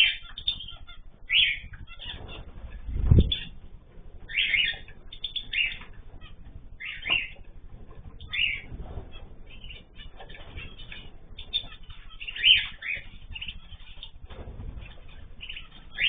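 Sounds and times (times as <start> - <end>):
small birds chirping: 0.0 - 16.0
wings fluttering: 0.0 - 16.0.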